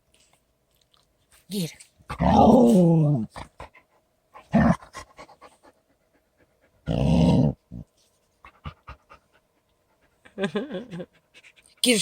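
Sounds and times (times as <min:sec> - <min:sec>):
dog panting and huffing: 0:03.6 - 0:06.9, 0:08.2 - 0:12.0.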